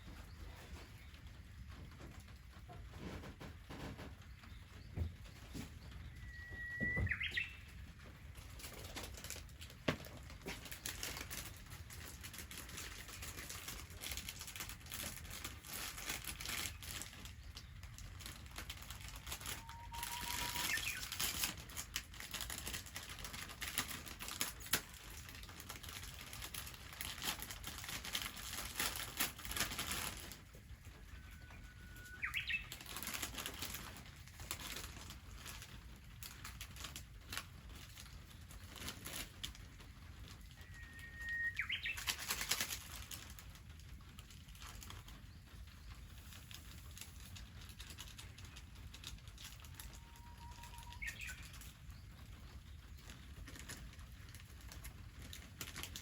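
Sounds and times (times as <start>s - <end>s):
wood fire crackling: 0.0s - 56.0s
bird whistle: 6.1s - 7.7s, 19.6s - 21.1s, 40.6s - 42.1s, 50.0s - 51.4s.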